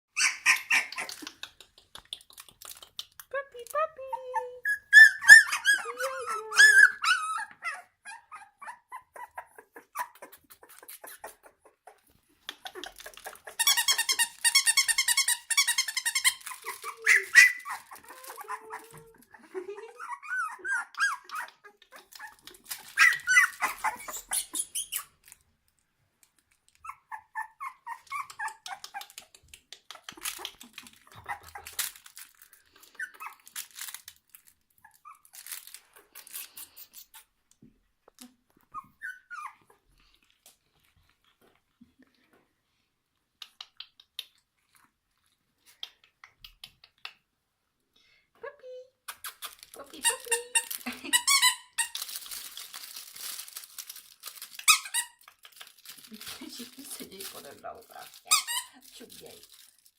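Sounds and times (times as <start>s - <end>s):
puppies whimpering and yipping: 0.2s - 1.3s, 4.1s - 25.1s, 26.8s - 29.2s, 30.1s - 32.0s, 32.8s - 33.7s, 38.7s - 39.9s.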